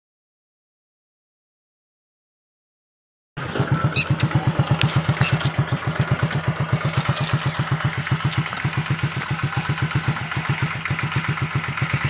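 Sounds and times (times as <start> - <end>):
small engine idling: 3.4 - 12.0.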